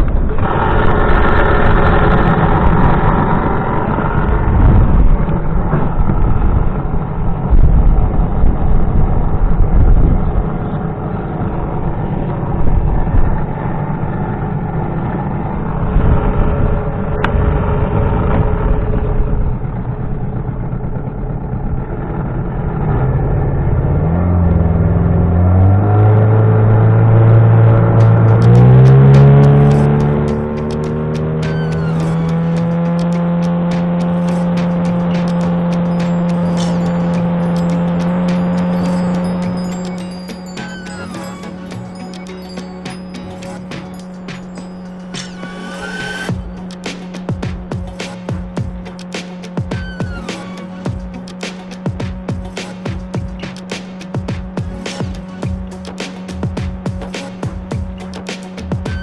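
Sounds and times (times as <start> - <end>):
loud wind noise: 0.0 - 13.9
engine running: 0.0 - 59.0.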